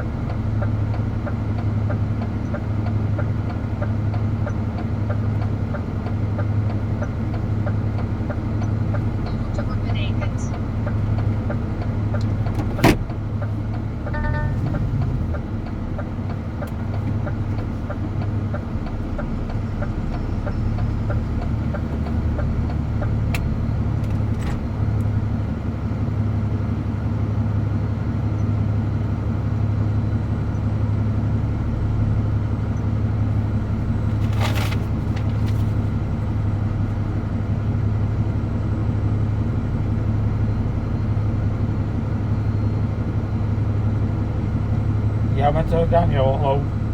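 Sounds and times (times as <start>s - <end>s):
truck diesel engine running: 0.0s - 46.9s
brief pitched tone: 14.1s - 15.0s.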